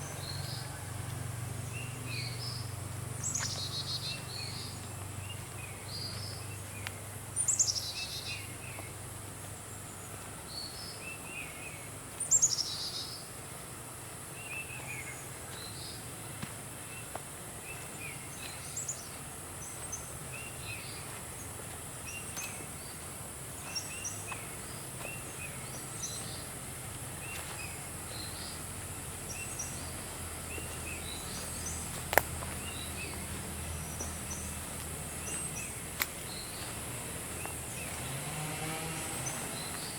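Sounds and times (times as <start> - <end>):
birds chirping: 0.0 - 39.9
insect hiss: 1.6 - 39.9.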